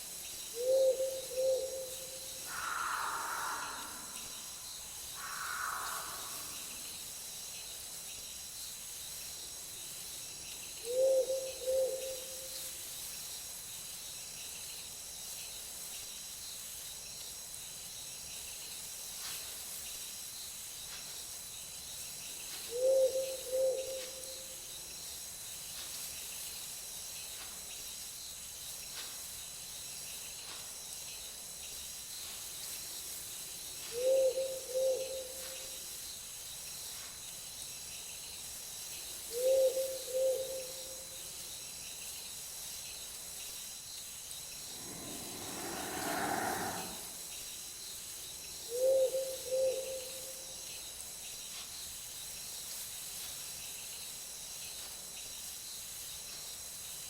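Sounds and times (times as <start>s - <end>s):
crickets and insects chorus: 0.0s - 57.0s
owl hooting: 0.6s - 4.5s, 5.2s - 6.7s, 10.9s - 12.2s, 39.4s - 40.7s, 44.7s - 47.2s.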